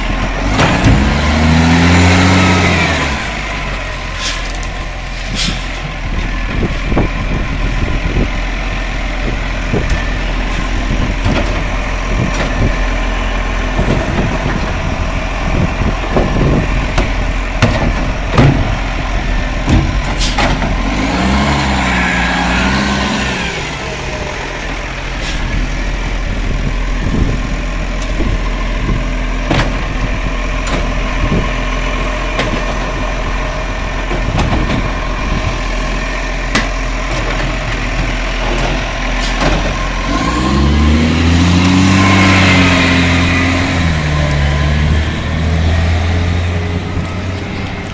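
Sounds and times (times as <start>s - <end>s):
garbage truck engine running: 0.0s - 47.9s
knocks and clanks: 0.2s - 1.3s, 9.3s - 12.8s, 15.6s - 18.8s, 19.6s - 21.0s, 28.9s - 31.5s, 34.0s - 34.9s, 36.5s - 39.9s.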